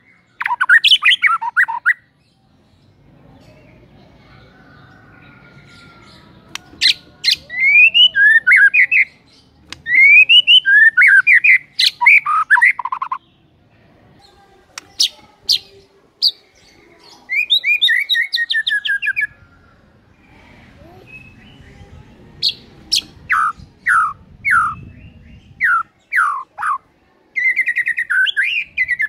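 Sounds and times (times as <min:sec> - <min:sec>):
sharp bird clicks: 0:06.5 - 0:07.0, 0:09.6 - 0:13.2
bird singing whistled notes: 0:06.8 - 0:09.2, 0:09.8 - 0:13.2.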